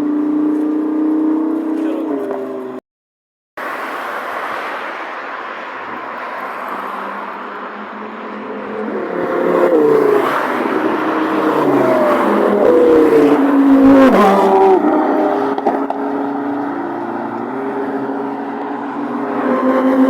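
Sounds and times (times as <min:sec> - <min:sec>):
sports car engines accelerating: 0:00.0 - 0:02.8, 0:07.0 - 0:20.0.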